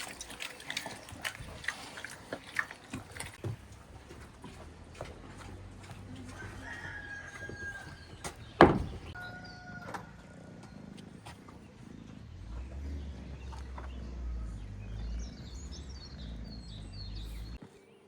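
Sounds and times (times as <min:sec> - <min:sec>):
rooster crowing: 0:06.3 - 0:08.0, 0:09.2 - 0:10.6.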